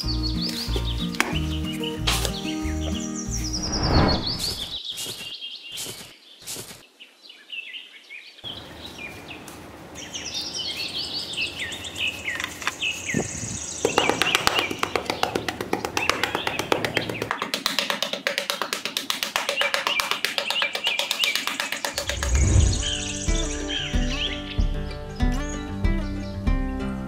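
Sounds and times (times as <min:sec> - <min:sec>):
background music: 0:00.0 - 0:04.1, 0:22.0 - 0:27.0
small birds chirping: 0:00.0 - 0:18.0, 0:19.4 - 0:26.5.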